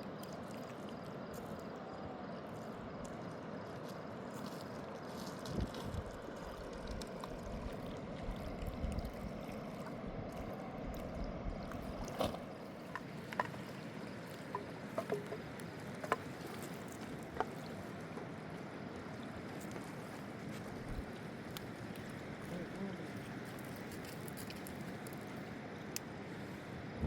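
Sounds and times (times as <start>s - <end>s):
light sharp clicks or drips: 0.0s - 1.8s, 2.6s - 12.3s, 12.9s - 18.4s, 20.6s - 26.1s
river water rushing around boat: 0.0s - 27.0s.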